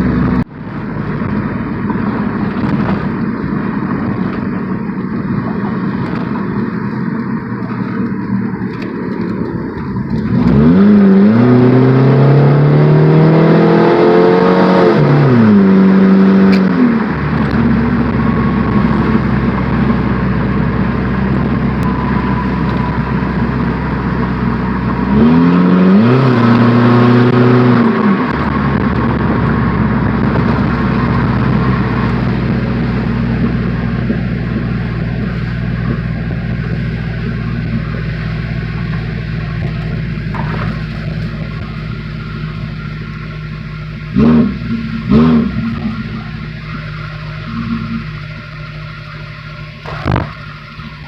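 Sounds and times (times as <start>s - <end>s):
car engine revving: 0.0s - 51.0s
exhaust pop: 0.1s - 10.6s, 26.3s - 48.5s, 49.6s - 51.0s.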